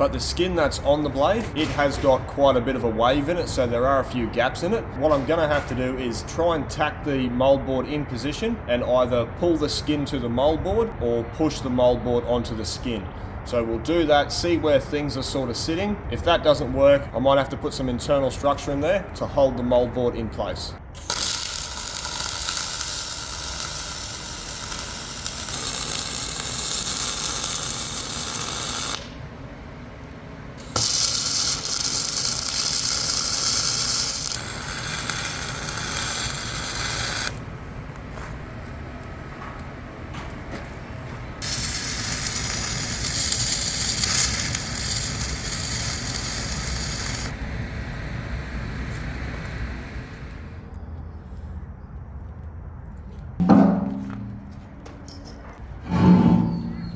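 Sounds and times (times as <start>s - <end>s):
electric arc welding crackle: 20.9s - 29.2s, 30.6s - 37.4s, 41.4s - 47.4s.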